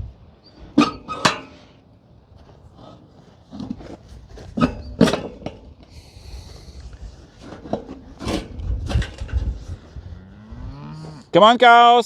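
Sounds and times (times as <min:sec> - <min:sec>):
knocks and clatters: 0:03.5 - 0:05.9, 0:07.3 - 0:09.9.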